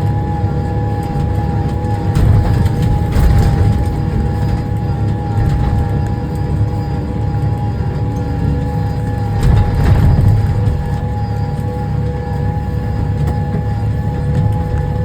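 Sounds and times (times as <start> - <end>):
drivetrain whine: 0.0 - 15.0
tractor engine rumbling: 0.0 - 15.0.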